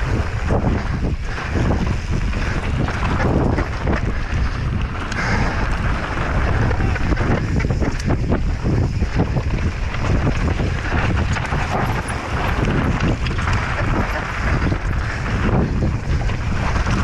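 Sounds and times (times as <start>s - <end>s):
bike clattering over rough ground: 0.0s - 17.0s
wind buffeting microphone: 0.0s - 17.0s.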